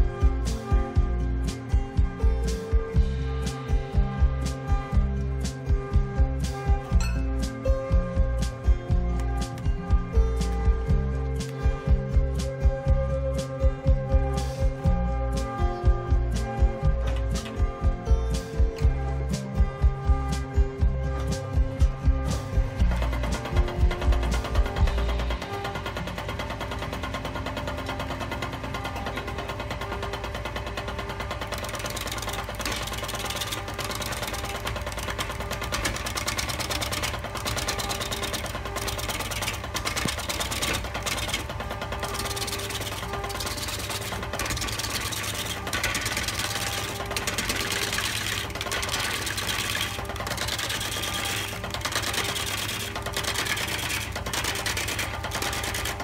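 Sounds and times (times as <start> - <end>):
turning tool cutting wood: 22.2 - 56.0
wood lathe ticking: 22.3 - 56.0.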